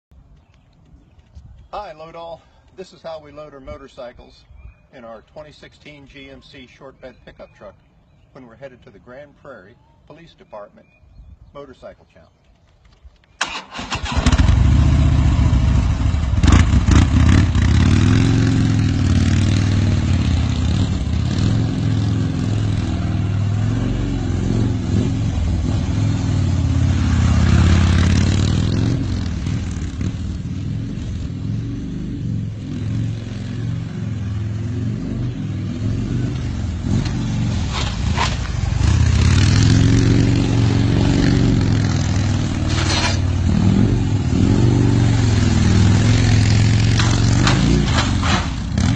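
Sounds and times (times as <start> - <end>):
motorcycle engine revving: 13.4 - 48.9
sharp clanks: 46.8 - 48.9.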